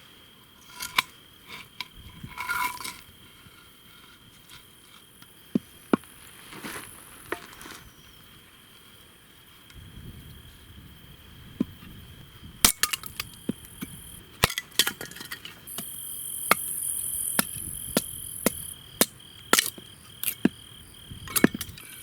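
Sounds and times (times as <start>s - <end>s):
wood chopping strikes: 15.8s - 16.8s, 17.4s - 20.6s.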